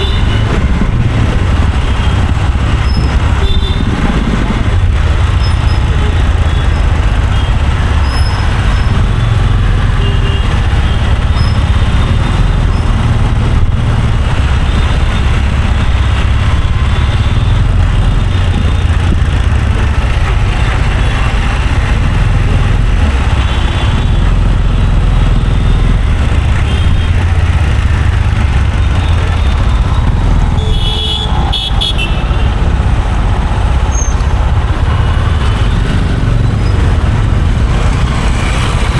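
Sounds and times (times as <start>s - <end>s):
vehicle horns: 0.0s - 1.0s, 1.9s - 4.3s, 7.3s - 12.5s, 25.6s - 27.9s, 28.6s - 32.6s
road traffic rumble: 0.0s - 38.9s.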